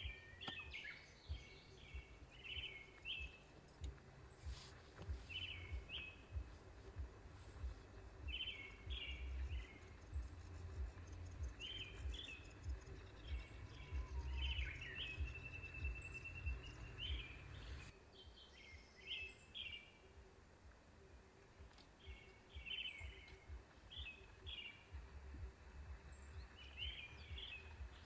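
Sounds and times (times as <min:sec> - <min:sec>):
bird trill: 0:00.0 - 0:20.1, 0:21.7 - 0:28.0
small birds chirping: 0:00.0 - 0:28.0
low rumble: 0:01.3 - 0:17.9, 0:22.6 - 0:28.0.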